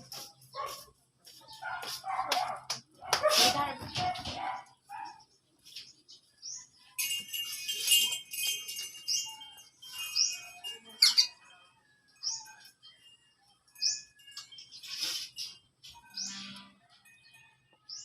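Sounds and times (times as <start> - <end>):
jingly ringing burst: 6.9 - 11.6.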